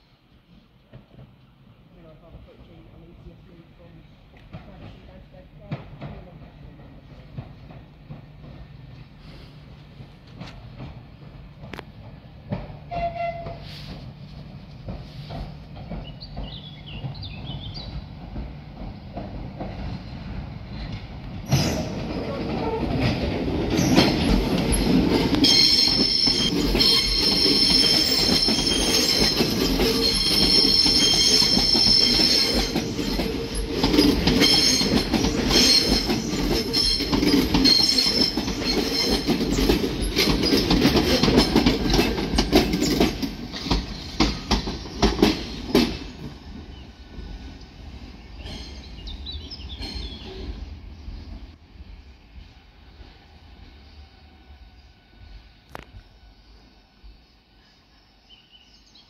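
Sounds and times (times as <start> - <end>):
train rumble: 0.0 - 57.6
wheels clicking over rail joints: 20.8 - 46.4
high-pitched wheel squeal: 25.4 - 33.7.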